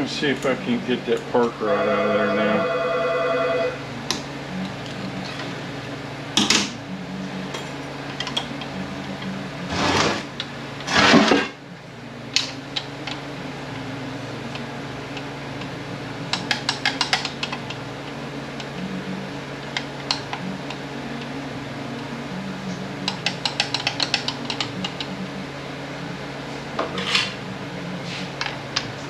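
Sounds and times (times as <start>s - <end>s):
metal scraping: 9.6s - 11.6s.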